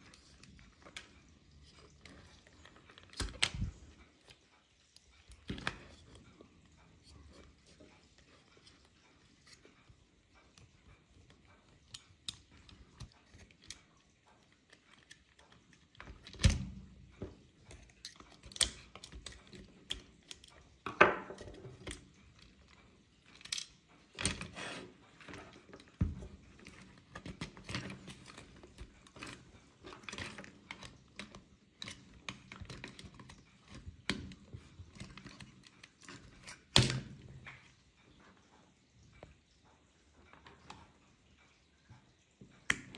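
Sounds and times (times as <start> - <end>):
small metal parts clicking and clinking: 21.8 - 24.4.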